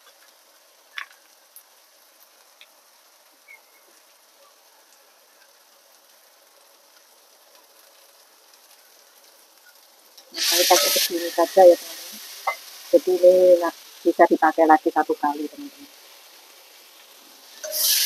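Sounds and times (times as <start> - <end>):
onions sizzling in oil: 0.0 - 18.0
small oil pops: 0.9 - 2.8.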